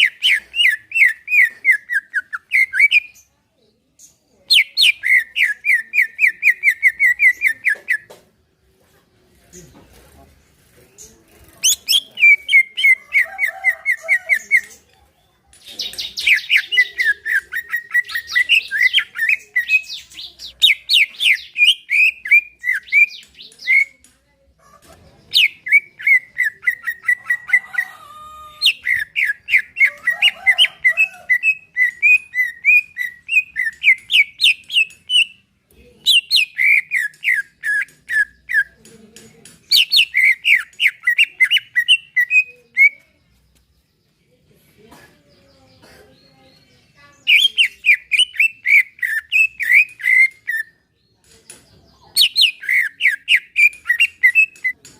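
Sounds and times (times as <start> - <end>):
bird singing chirping phrases: 0.0 - 54.9.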